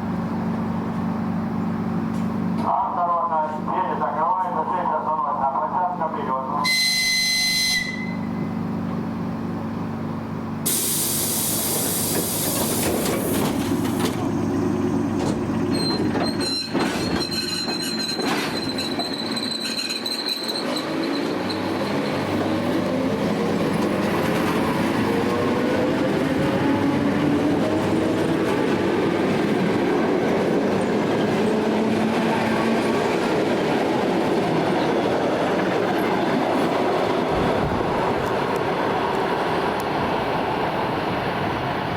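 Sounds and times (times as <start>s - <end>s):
train wheel squeal: 6.7s - 8.5s, 15.6s - 22.4s
air hiss: 10.7s - 13.5s
train wheels rolling: 10.7s - 41.9s.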